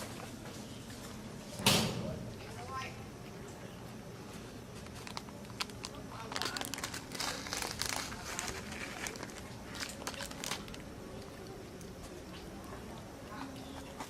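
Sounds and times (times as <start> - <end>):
crinkling crackling rustle: 2.4 - 14.0.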